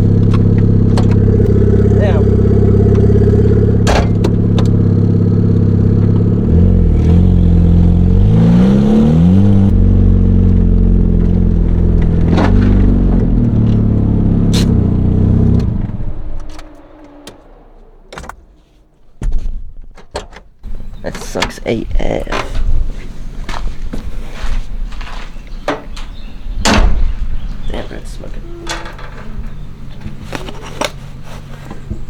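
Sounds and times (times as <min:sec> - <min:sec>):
car engine revving: 0:00.0 - 0:19.2.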